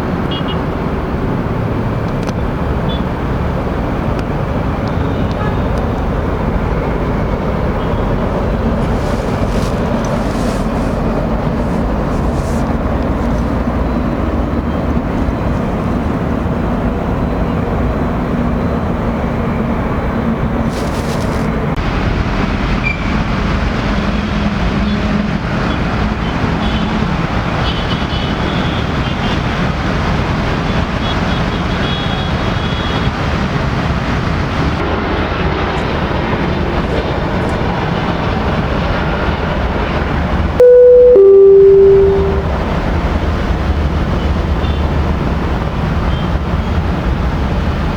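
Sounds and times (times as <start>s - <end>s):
two-note descending tone: 40.6s - 42.7s.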